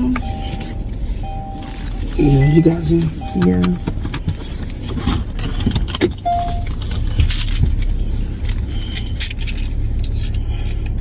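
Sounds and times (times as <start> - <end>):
short beep: 0.0 - 3.9, 6.2 - 6.7
car road rumble inside cabin: 0.0 - 11.0
clicks and rustles of handling: 1.6 - 11.0.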